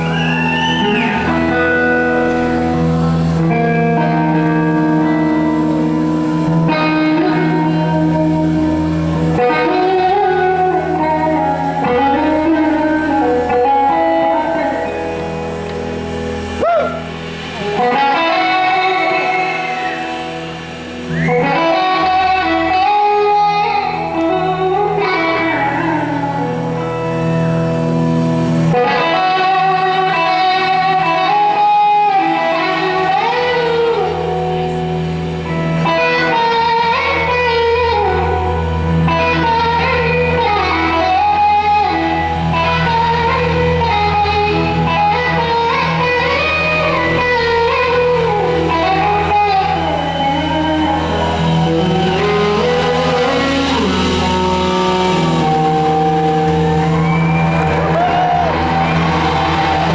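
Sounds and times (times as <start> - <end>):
electric slide guitar melody: 0.0 - 59.9
live band playing soul-rock: 0.0 - 59.9.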